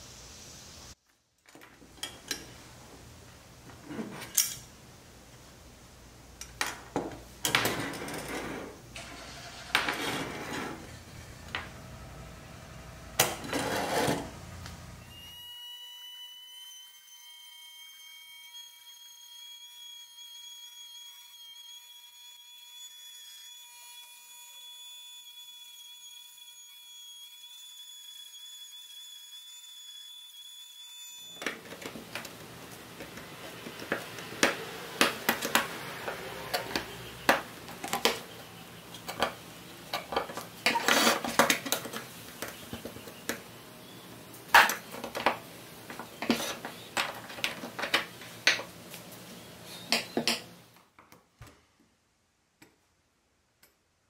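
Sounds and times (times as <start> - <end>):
rotary tool grinding metal: 13.2 - 14.3, 39.3 - 41.4.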